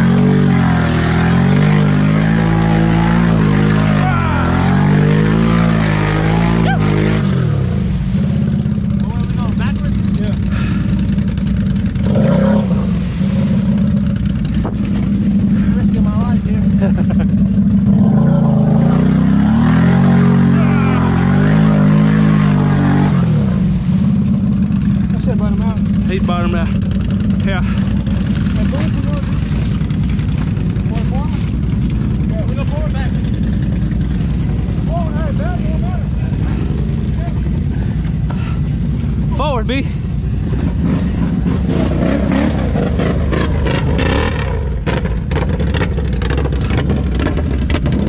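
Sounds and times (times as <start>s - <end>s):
atv engine running: 0.0s - 48.0s.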